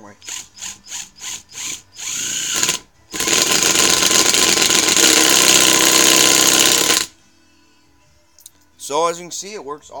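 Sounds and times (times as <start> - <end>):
impact driver hammering: 1.6 - 7.1.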